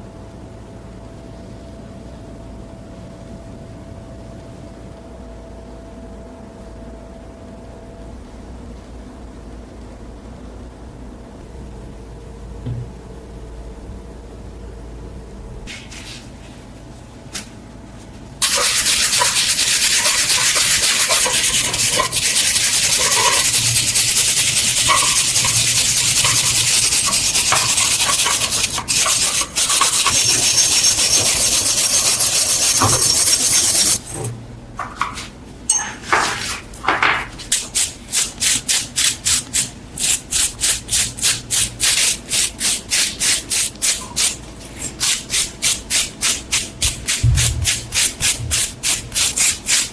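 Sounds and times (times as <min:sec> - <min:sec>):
sanding strokes on metal: 0:18.4 - 0:34.0, 0:37.5 - 0:49.9
steady loud hiss: 0:18.4 - 0:35.4, 0:36.0 - 0:49.9.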